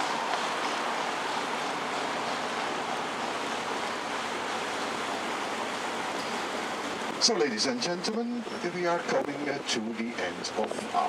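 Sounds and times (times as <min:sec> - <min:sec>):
boat water and motor rushing: 0:00.0 - 0:11.0.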